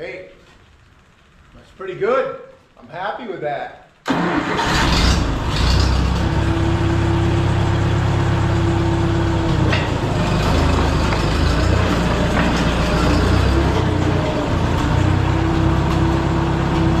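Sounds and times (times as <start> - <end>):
dozer engine running: 4.1 - 17.0.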